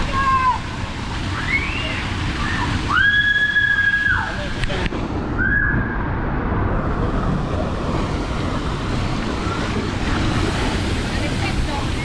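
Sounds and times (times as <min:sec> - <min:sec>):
running water: 0:00.0 - 0:12.0
wind buffeting microphone: 0:04.4 - 0:12.0.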